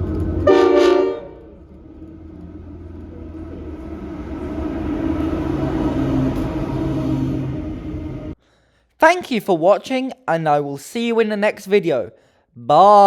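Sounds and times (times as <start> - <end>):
locomotive horn blast: 0.0 - 8.4
low rumble of passing train: 0.0 - 8.4.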